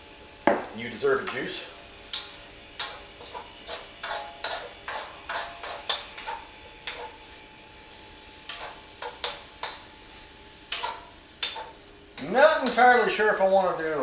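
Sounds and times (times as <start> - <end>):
metal utensil scraping metal pan: 1.2 - 12.9.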